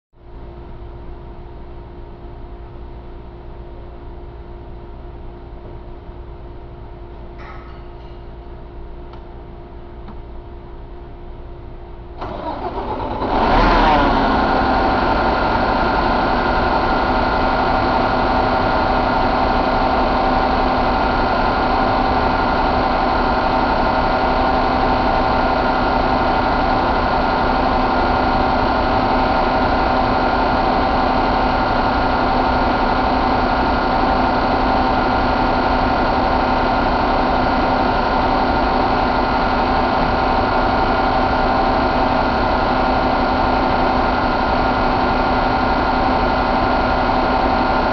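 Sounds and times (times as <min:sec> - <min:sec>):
diesel engine idling: 0:12.2 - 0:47.9.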